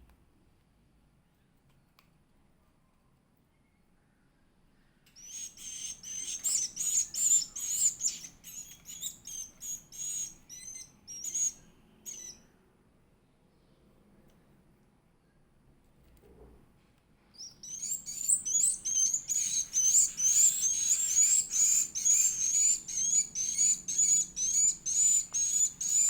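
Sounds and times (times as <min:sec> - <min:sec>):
bird chick chirping: 0:05.2 - 0:12.4, 0:17.4 - 0:26.0.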